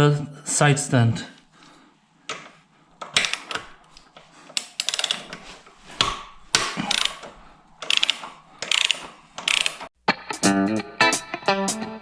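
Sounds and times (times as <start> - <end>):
ratchet wrench clicking: 4.7 - 5.2, 6.9 - 7.2, 7.8 - 9.9.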